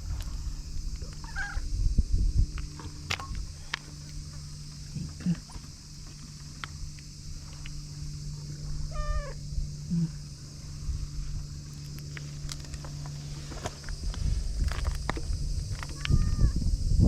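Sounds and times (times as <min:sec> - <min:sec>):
steady low hum: 0:00.0 - 0:17.0
cat meowing: 0:01.2 - 0:01.6, 0:08.9 - 0:09.4, 0:15.9 - 0:16.6.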